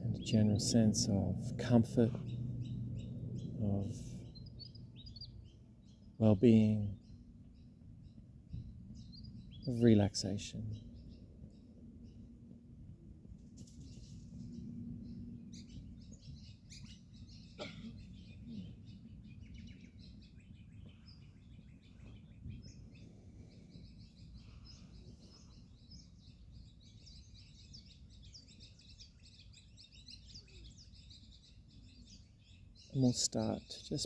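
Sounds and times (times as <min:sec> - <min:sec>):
magpies warbling and chirping: 0:00.0 - 0:08.2
faint low rumble: 0:00.0 - 0:16.8.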